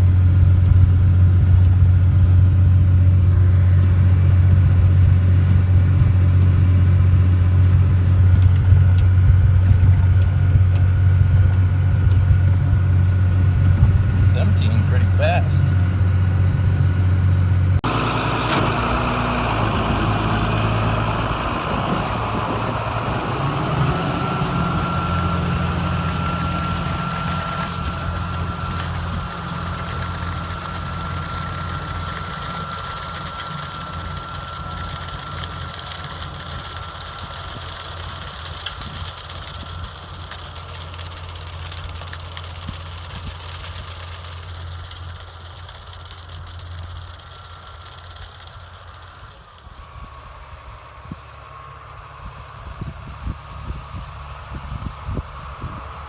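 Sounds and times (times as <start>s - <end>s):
tractor engine running: 0.0s - 56.0s
thin steady whine: 8.3s - 37.8s.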